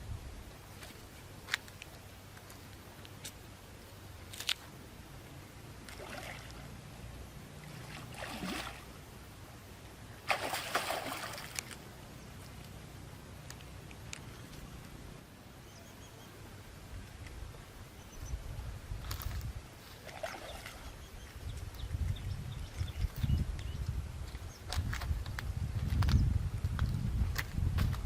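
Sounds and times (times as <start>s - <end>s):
water sloshing and splashing: 5.8s - 6.8s, 7.6s - 9.0s, 10.2s - 11.8s, 19.9s - 21.0s.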